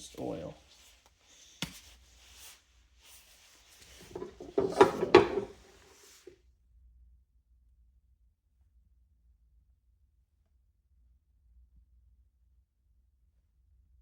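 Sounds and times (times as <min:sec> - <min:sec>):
knocks and rattles: 0:03.9 - 0:05.9.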